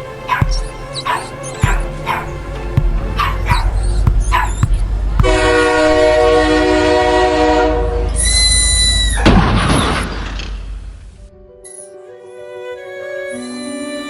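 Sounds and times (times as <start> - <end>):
train horn: 0.0 - 9.2
dog yelping: 0.2 - 5.0.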